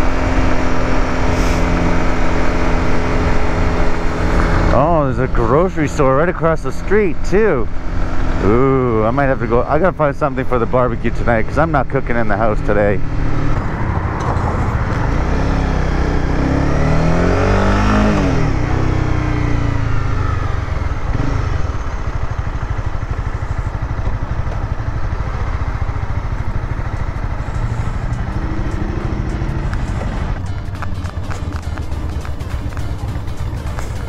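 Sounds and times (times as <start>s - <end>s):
motorcycle engine: 0.0s - 34.0s.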